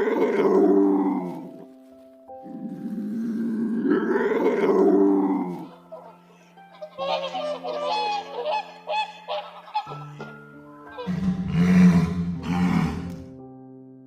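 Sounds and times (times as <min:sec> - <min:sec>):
big cat roaring: 0:00.0 - 0:01.5, 0:02.5 - 0:05.7, 0:11.0 - 0:13.2
background music: 0:00.0 - 0:14.0.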